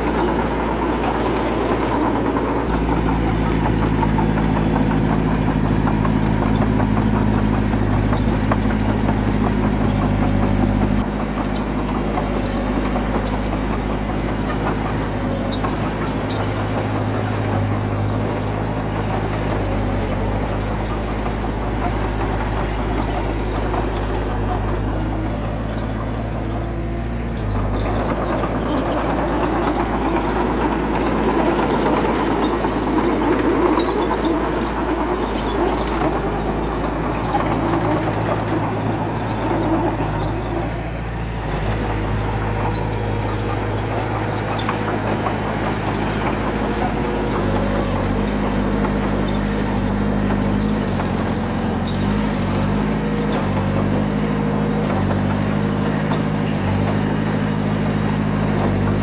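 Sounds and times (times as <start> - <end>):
diesel engine clattering: 0.0 - 59.0.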